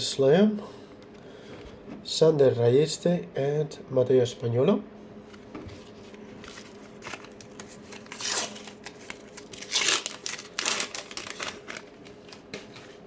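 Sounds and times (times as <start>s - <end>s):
wrapper crinkling: 6.5s - 12.8s
paper pack tearing: 7.0s - 12.4s.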